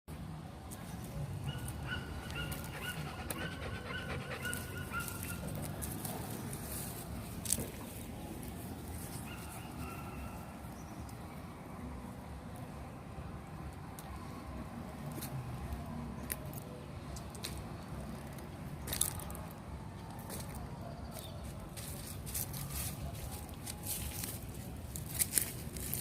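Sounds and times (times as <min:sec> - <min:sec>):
dog whimpering: 0:01.5 - 0:05.4.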